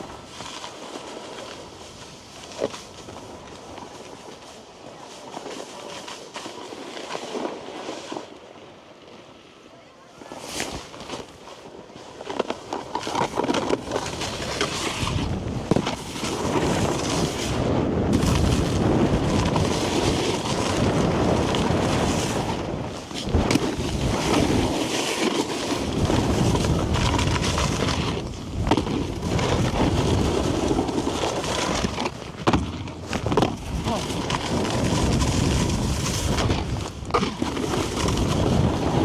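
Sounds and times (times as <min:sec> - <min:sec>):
snowboard scraping over icy snow: 0:00.0 - 0:09.5, 0:10.2 - 0:39.0
wind rumbling on microphone: 0:12.8 - 0:39.0.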